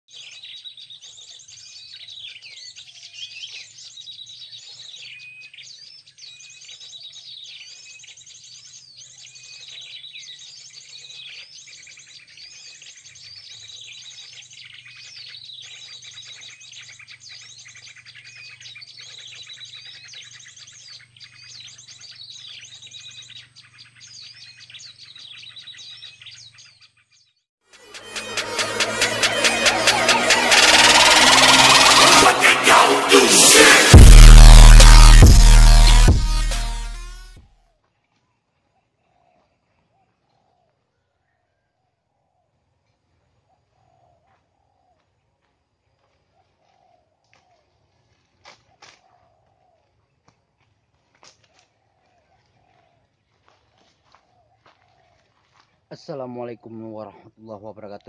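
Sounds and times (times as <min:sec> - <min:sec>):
small birds chirping: 0:00.1 - 0:27.4.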